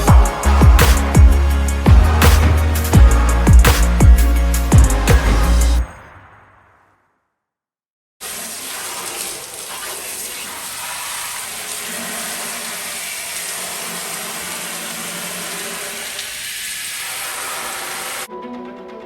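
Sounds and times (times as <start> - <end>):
water spraying on vehicle: 8.2 - 18.3.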